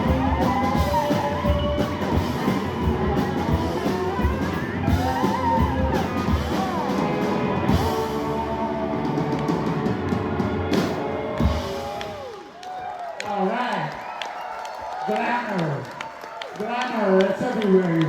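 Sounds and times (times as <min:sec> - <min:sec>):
live rock band: 0:00.0 - 0:12.6.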